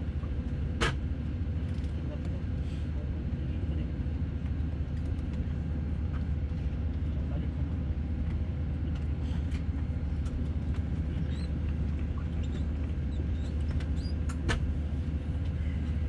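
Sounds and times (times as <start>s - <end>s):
aircraft cabin hum: 0.0s - 16.0s
small squeaks: 11.1s - 11.6s, 12.2s - 14.3s.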